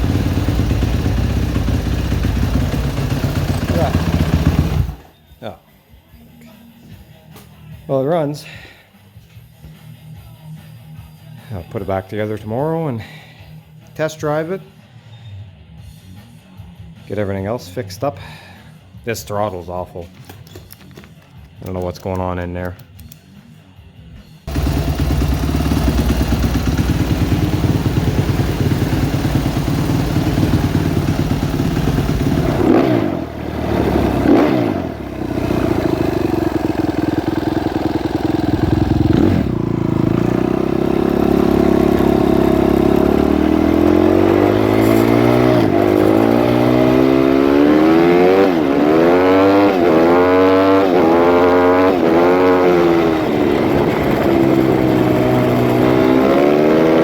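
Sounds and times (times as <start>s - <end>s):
motorcycle engine revving: 0.0s - 5.2s, 24.5s - 57.0s.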